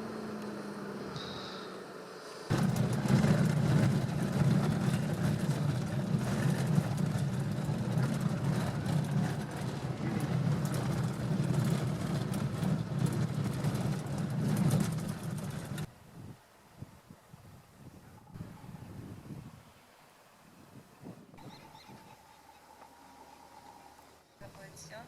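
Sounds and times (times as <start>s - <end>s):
vehicle engine hum: 0.0s - 16.1s, 21.2s - 25.0s
rattling and clicking: 2.5s - 15.9s.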